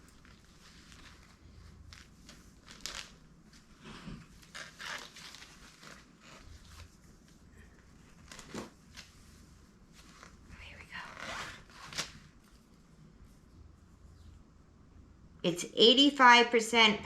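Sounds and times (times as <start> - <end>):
fabric rustling: 0.0 - 14.3
plastic bag crinkling: 0.1 - 3.4.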